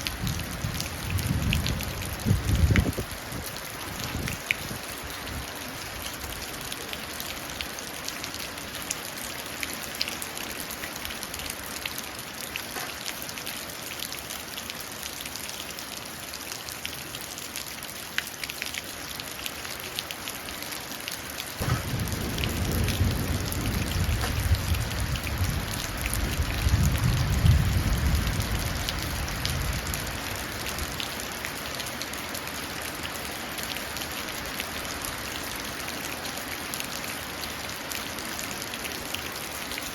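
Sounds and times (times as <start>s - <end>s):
rain running into puddle: 0.0s - 39.9s
thunder rumble: 21.6s - 30.0s.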